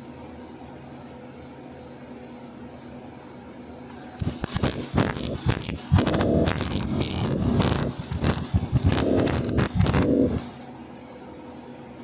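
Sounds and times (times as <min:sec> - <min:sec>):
welding arc crackling: 0:03.9 - 0:10.6
steady low hum: 0:04.0 - 0:10.6.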